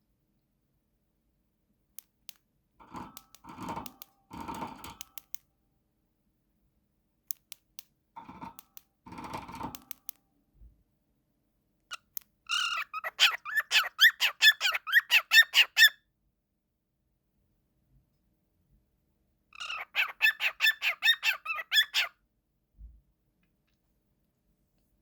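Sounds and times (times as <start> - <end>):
cockatiel chirping: 11.9 - 16.0, 19.6 - 22.1.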